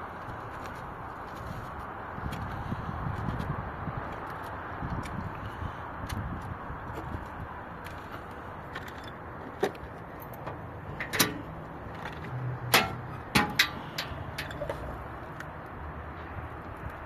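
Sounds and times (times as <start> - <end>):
steady background noise: 0.0 - 17.0
sharp knocks and clanks: 10.4 - 14.8.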